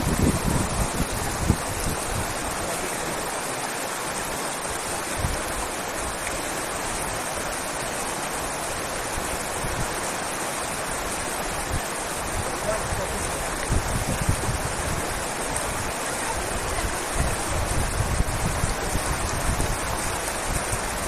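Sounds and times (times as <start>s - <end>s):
wind thumps on microphone: 0.0s - 2.4s, 12.4s - 15.1s, 16.7s - 21.0s
flowing river water: 0.0s - 21.0s.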